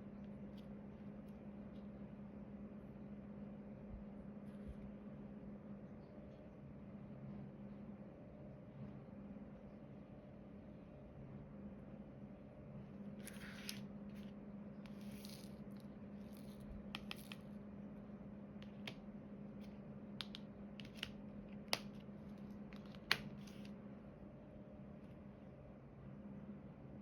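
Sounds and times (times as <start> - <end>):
steady low hum: 0.0 - 27.0
drill pen clicks and taps: 20.2 - 21.1.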